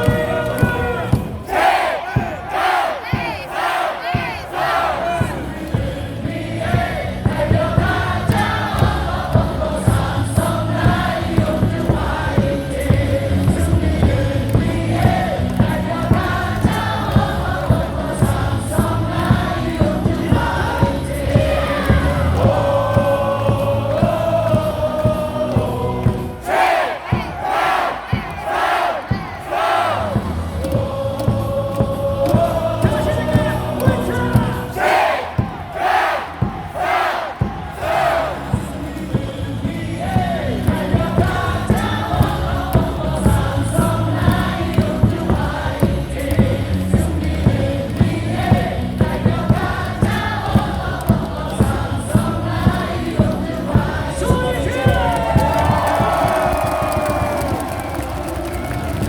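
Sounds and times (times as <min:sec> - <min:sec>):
crowd singing in unison: 0:00.0 - 0:59.0.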